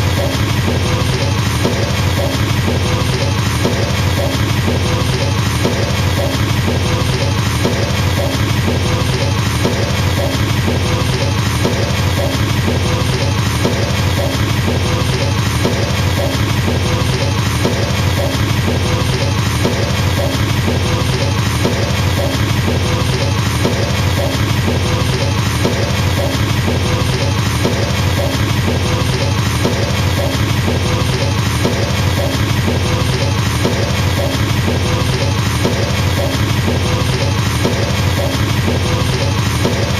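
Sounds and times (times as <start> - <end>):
fast double bass kick drum: 0.0 - 39.9.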